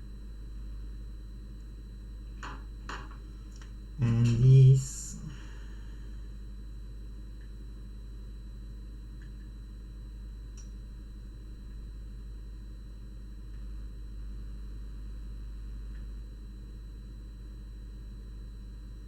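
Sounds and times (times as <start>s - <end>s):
low electrical hum: 0.0s - 19.0s
faint light ticks: 10.6s - 10.8s.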